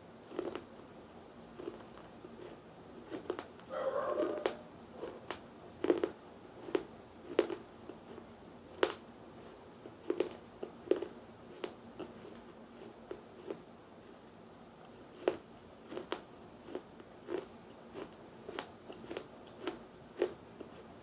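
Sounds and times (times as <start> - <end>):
baked clay crunching being chewed: 0.1 - 21.0.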